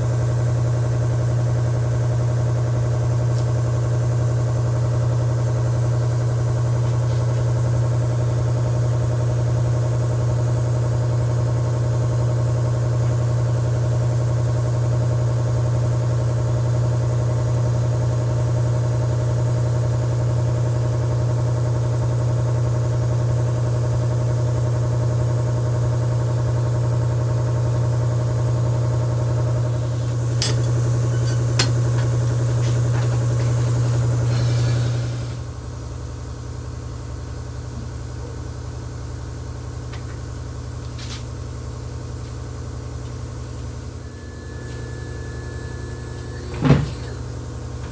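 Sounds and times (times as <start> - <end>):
machine motor droning: 44.0 - 47.9.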